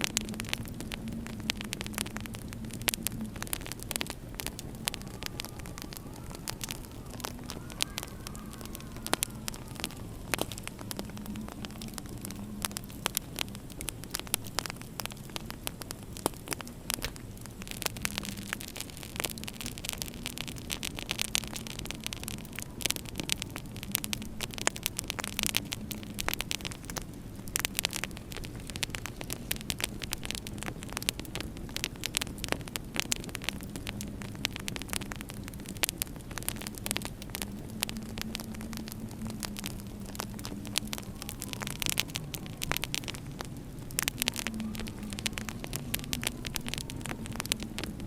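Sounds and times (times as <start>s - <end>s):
steady hiss: 0.0s - 48.0s
wood fire crackling and popping: 0.0s - 48.0s.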